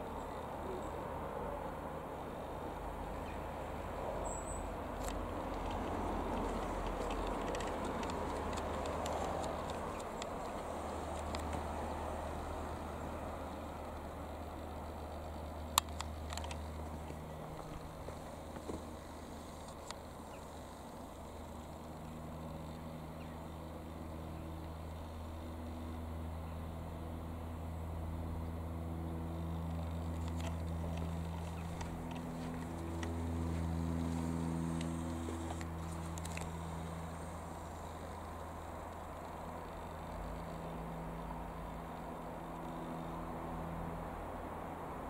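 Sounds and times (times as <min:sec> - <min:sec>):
distant piston engine aircraft droning: 0:00.0 - 0:45.0
faint clicks: 0:05.0 - 0:12.0, 0:13.5 - 0:20.9.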